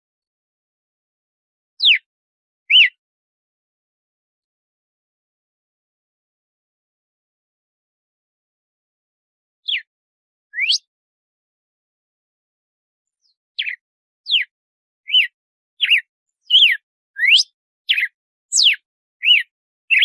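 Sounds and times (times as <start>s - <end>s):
bird whistling song: 1.8s - 2.1s, 2.7s - 3.0s, 9.6s - 9.9s, 10.5s - 10.9s, 13.1s - 20.0s.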